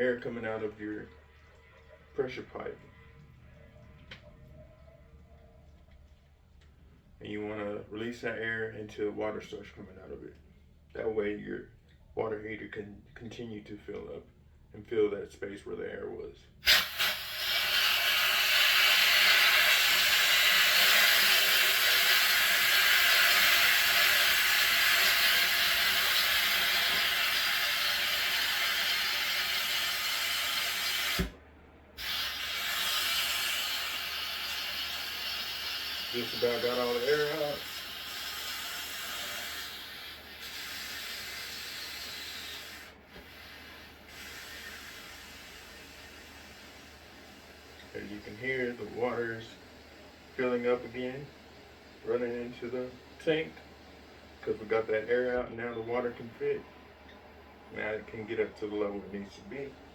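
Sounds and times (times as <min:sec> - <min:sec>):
air hissing from relief valve: 0:16.6 - 0:31.4, 0:32.0 - 0:59.9.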